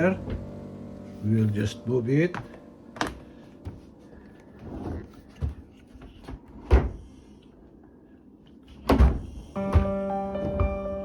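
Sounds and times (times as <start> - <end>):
dishwasher knocks and thuds: 8.9 - 11.0.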